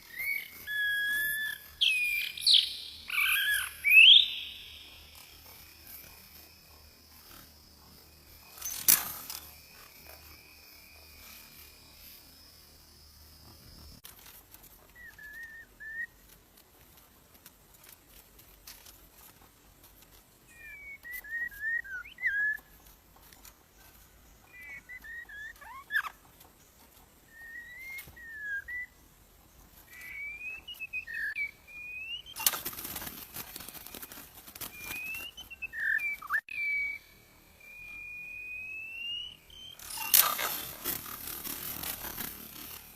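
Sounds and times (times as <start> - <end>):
bird whistled song: 0.0 - 5.7, 15.0 - 16.2, 20.5 - 22.8, 24.4 - 26.2, 27.3 - 29.0, 29.9 - 33.0, 33.8 - 42.9.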